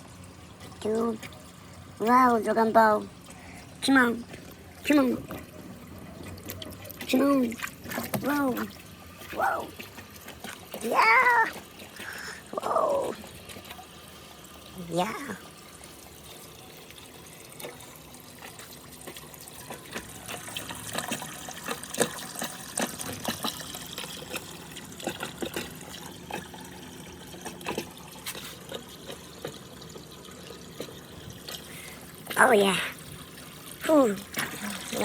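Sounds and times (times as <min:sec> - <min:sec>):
water trickling: 0:00.0 - 0:35.0.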